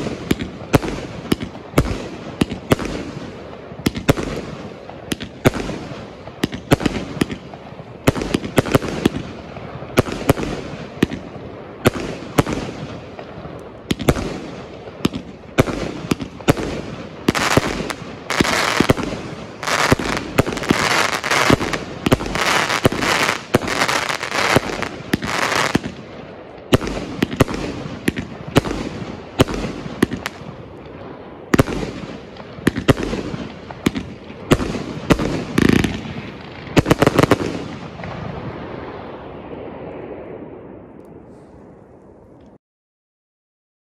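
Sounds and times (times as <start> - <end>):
firework bangs: 0.0 - 41.4
firework effects hissing: 15.9 - 25.9.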